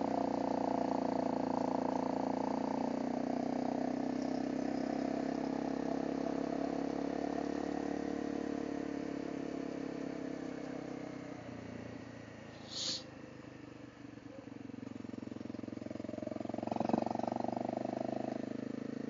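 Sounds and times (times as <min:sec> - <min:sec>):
muffled motorcycle engine running: 0:00.0 - 0:19.0
short high-pitched chirp: 0:12.6 - 0:13.0.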